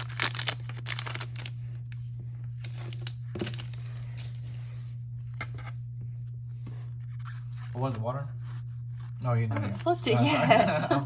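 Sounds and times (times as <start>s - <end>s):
foil wrapper crinkling: 0.0s - 2.0s, 2.6s - 4.4s
low electrical hum: 0.0s - 11.0s.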